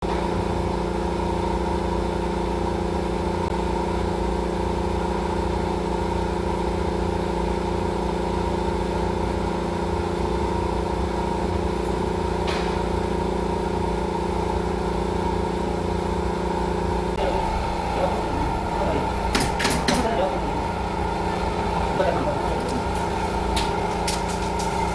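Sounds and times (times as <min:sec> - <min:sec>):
steady machine hum: 0:09.0 - 0:24.9.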